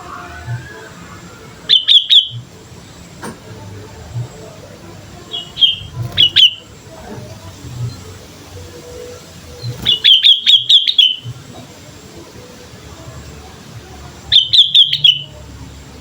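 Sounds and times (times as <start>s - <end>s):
bird chirping: 1.6s - 2.5s, 5.2s - 11.7s, 14.3s - 15.4s.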